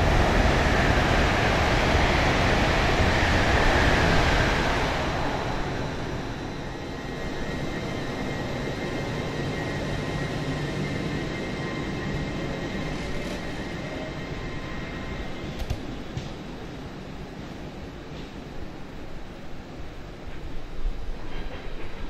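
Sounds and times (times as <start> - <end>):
train humming with high whine: 0.0 - 22.0.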